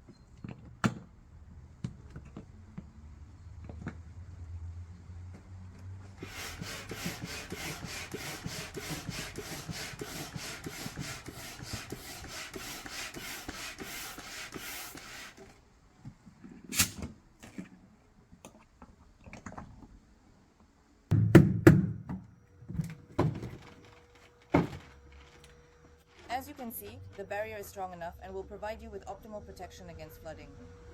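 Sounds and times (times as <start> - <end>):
rhythmic air pumping: 6.2 - 15.4.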